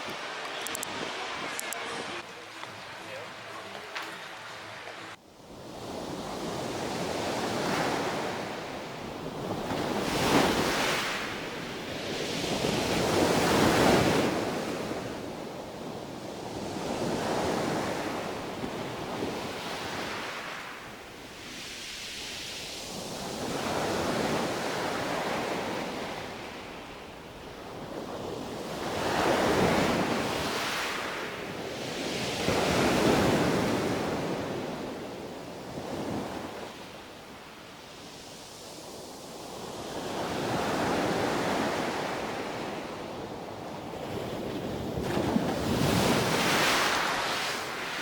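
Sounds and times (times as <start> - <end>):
wind on microphone: 0.0 - 2.3
sea waves breaking on beach: 0.0 - 48.0.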